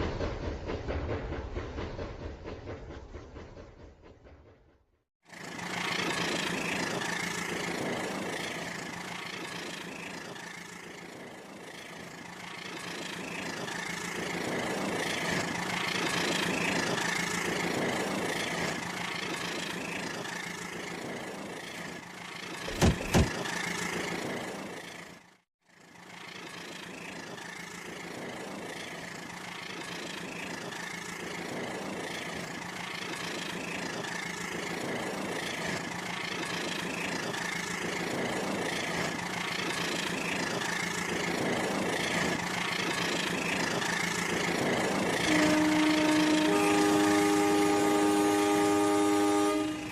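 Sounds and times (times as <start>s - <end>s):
sharp knocks: 22.7s - 23.4s.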